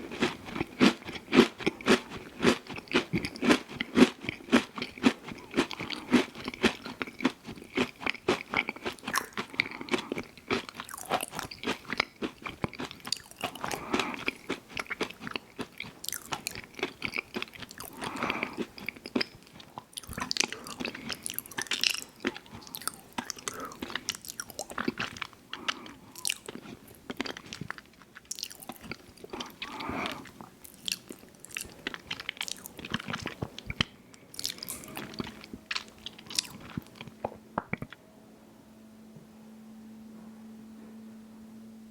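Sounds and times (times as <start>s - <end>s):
person chewing crunchy food: 0.0s - 38.0s
wet mouth sounds: 0.3s - 11.9s, 13.1s - 15.0s, 28.3s - 38.0s.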